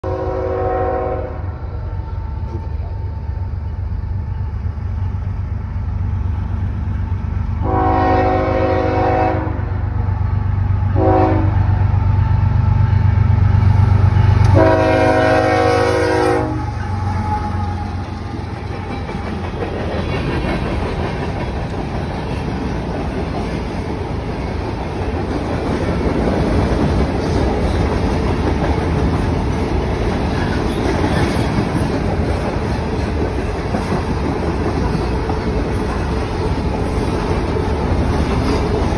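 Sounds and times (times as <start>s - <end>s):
locomotive horn blasts: 0.0s - 1.5s, 7.6s - 9.7s, 10.9s - 11.7s, 14.4s - 18.0s
diesel locomotive rumble: 0.0s - 38.9s
train wheels rumbling on rail: 0.0s - 38.9s.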